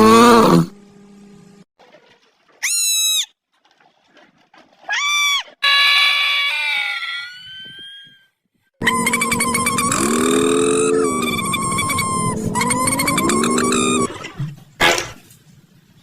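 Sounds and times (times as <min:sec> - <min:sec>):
animal high cries: 0:02.6 - 0:03.3, 0:04.9 - 0:14.1.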